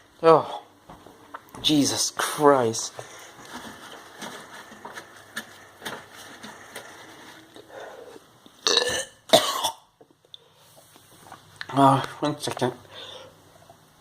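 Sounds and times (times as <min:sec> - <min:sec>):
faint clicks and rustles: 0:02.9 - 0:07.7
man retching: 0:08.6 - 0:09.9.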